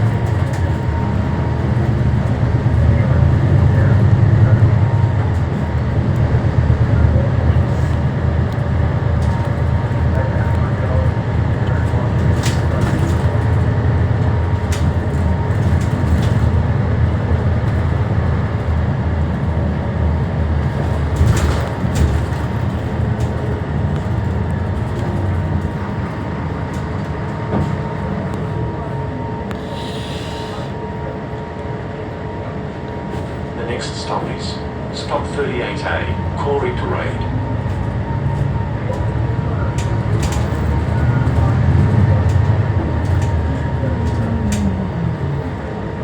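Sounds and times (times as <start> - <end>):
body rattles and knocks: 0.0 - 28.2, 37.4 - 44.8
bus diesel engine running: 0.0 - 46.0
road noise: 0.0 - 46.0.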